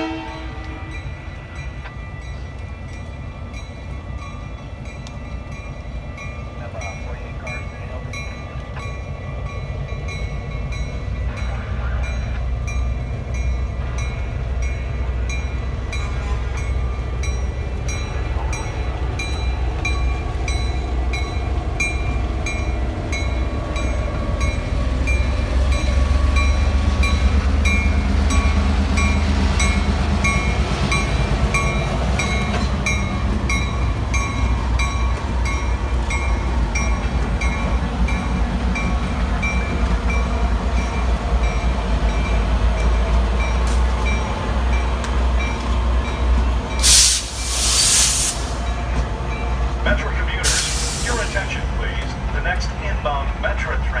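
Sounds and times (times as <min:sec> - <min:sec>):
train passing with low rumble: 0:00.0 - 0:54.0.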